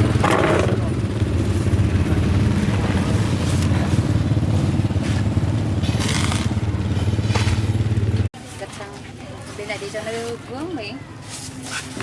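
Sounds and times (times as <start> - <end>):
motorbike engine droning: 0.0 - 8.3.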